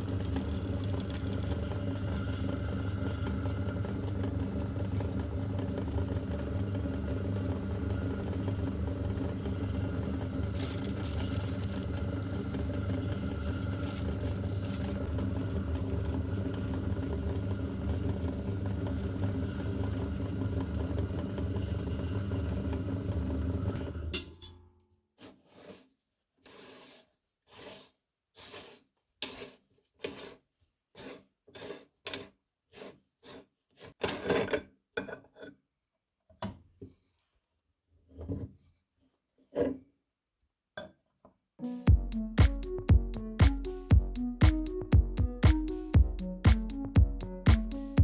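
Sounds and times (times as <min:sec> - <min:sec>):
meat grinder motor humming: 0:00.0 - 0:24.1.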